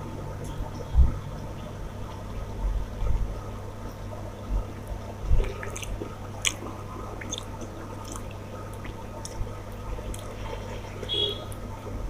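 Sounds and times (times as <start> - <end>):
person chewing food: 5.4 - 10.8.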